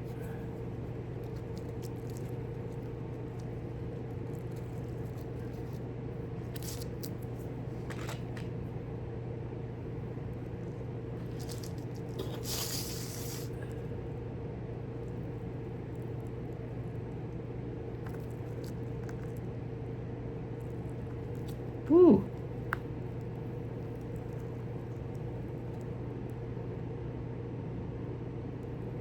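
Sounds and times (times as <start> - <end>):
small parts scraping and rustling: 0.0 - 5.8, 6.4 - 8.6, 11.2 - 13.6
steady hum: 0.0 - 29.0.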